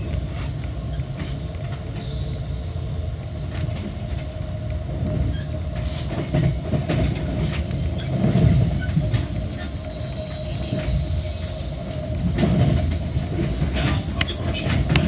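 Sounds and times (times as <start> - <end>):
train rumbling: 0.0 - 15.0
wheels clicking over rails: 5.1 - 15.0.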